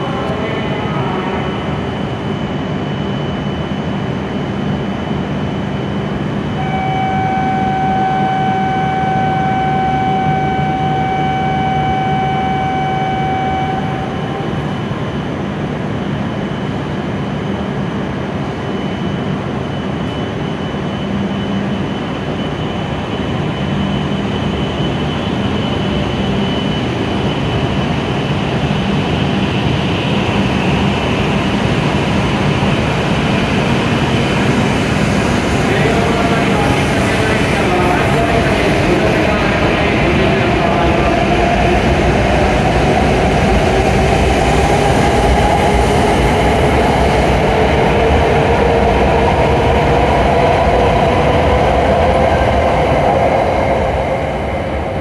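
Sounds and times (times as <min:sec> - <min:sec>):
train equipment humming: 0:06.1 - 0:15.9, 0:30.7 - 0:55.0
steady electronic tone: 0:06.5 - 0:14.9.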